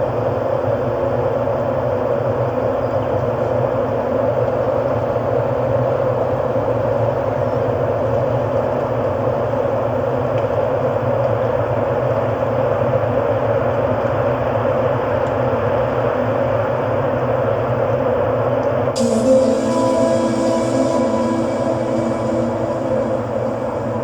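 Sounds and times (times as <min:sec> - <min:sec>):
ambient electronic drone: 0:19.0 - 0:24.0.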